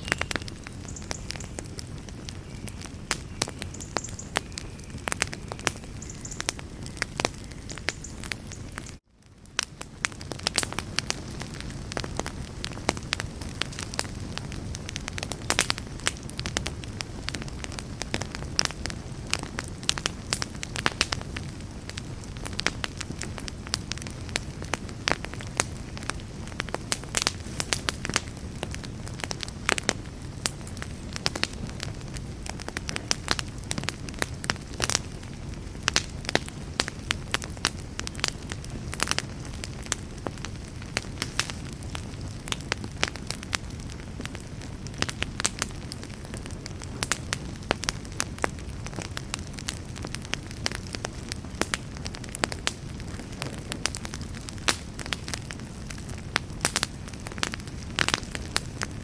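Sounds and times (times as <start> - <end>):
sharp pops and snaps: 0.0 - 9.0
campfire crackling: 0.0 - 59.0
low rush of flames: 0.0 - 59.0.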